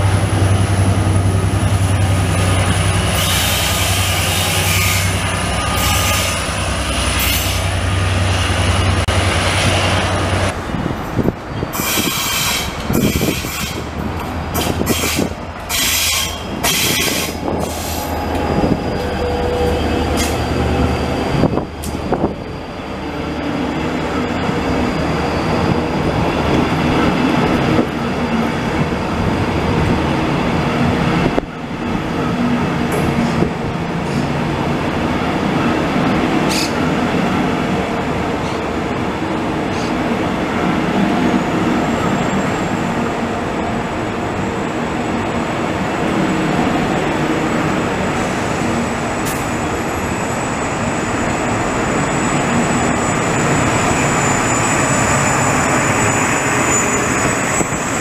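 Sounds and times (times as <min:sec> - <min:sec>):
train wheels rumbling on rails: 0:00.0 - 0:58.0
high wheel squeal: 0:14.8 - 0:27.4, 0:48.2 - 0:58.0.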